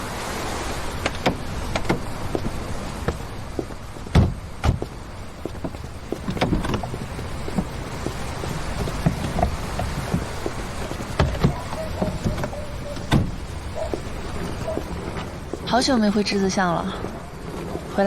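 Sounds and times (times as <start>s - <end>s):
car engine low rumble: 1.4s - 16.2s.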